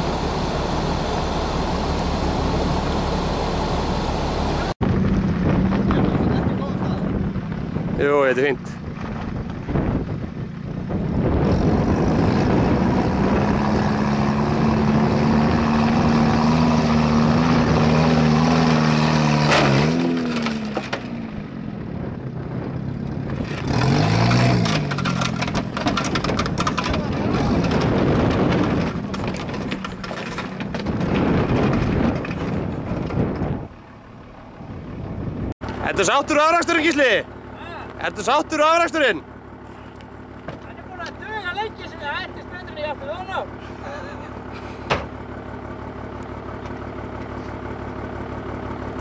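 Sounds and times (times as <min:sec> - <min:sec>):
car engine labouring: 0:00.0 - 0:49.0.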